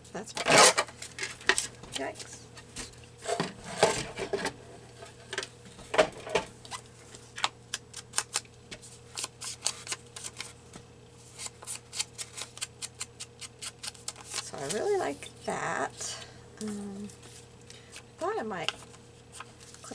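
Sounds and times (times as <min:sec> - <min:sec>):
paper rustling: 0:11.3 - 0:15.1.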